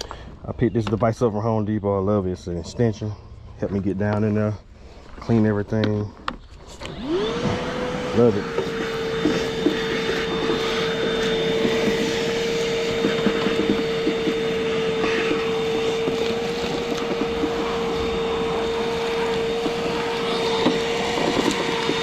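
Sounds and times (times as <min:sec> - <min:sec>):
vacuum cleaner whining: 0:05.4 - 0:22.0.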